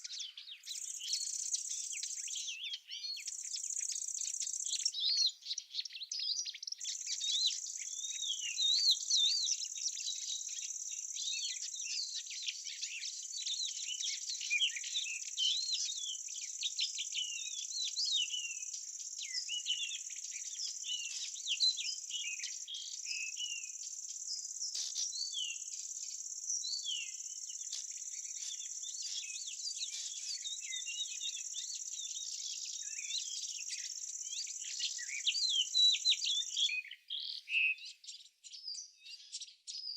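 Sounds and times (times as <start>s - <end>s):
small birds chirping: 0.0s - 39.9s
insect trill: 23.3s - 36.5s.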